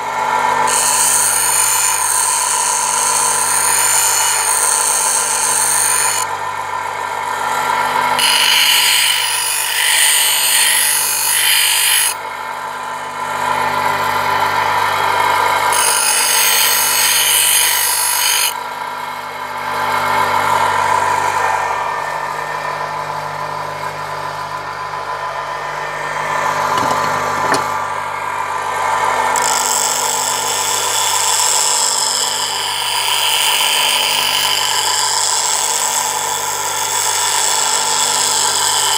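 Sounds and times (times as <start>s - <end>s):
bench grinder whine: 0.0s - 38.9s
chisel grinding hiss: 0.7s - 6.2s, 8.2s - 12.2s, 15.7s - 18.6s, 29.4s - 38.9s.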